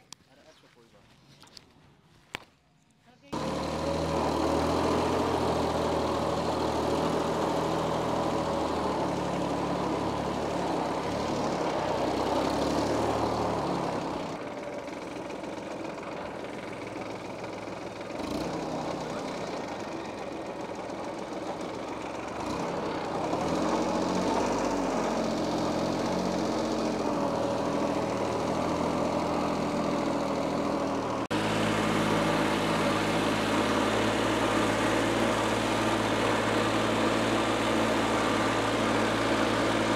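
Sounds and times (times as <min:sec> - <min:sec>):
diesel engine running: 0:03.1 - 0:39.9.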